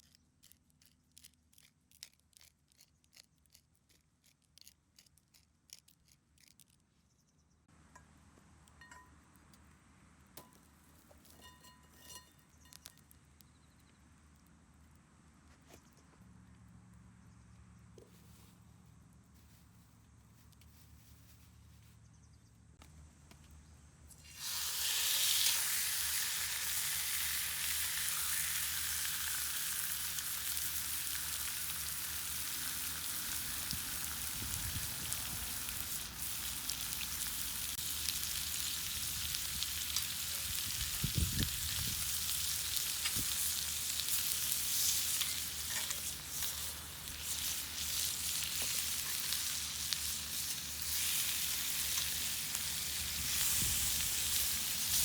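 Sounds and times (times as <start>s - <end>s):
food sizzling in a skillet: 24.2s - 55.0s.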